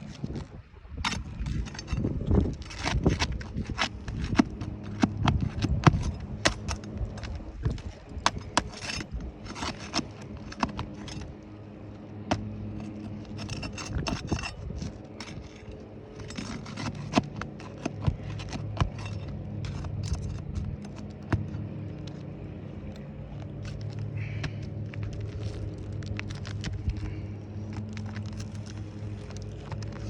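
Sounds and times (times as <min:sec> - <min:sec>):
tool scraping shingles: 0:00.0 - 0:22.3
steady low hum: 0:00.0 - 0:30.0.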